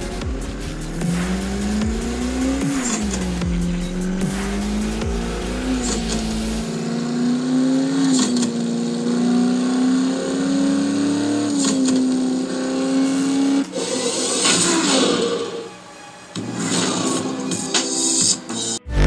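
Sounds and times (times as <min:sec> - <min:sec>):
noisy rush: 0:00.0 - 0:07.6
car engine running: 0:00.0 - 0:14.7.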